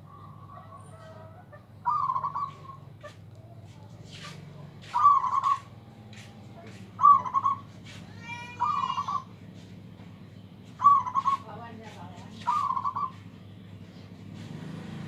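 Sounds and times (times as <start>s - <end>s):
dove cooing: 0.0s - 3.2s, 4.2s - 5.7s, 7.0s - 7.7s, 8.6s - 9.3s, 10.8s - 11.5s, 12.4s - 13.2s.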